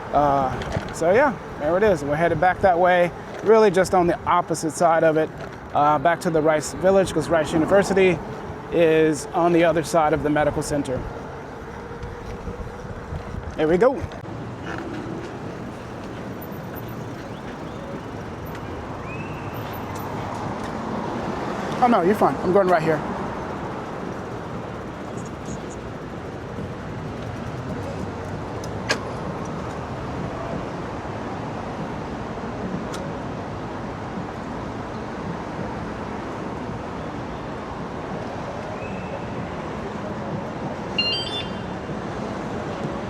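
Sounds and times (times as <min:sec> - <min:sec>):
road noise: 0:00.0 - 0:43.0
street traffic noise: 0:00.0 - 0:43.0
wind rush: 0:06.6 - 0:14.3
short high chirp: 0:41.0 - 0:41.7.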